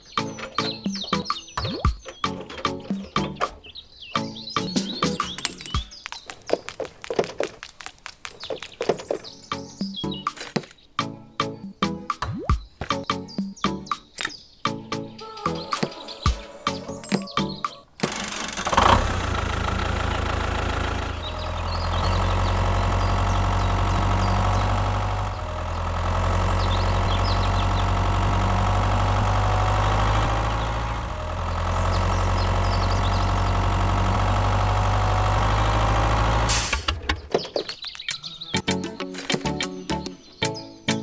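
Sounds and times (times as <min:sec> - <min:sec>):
engine idling: 0:00.0 - 0:03.8, 0:15.5 - 0:37.8.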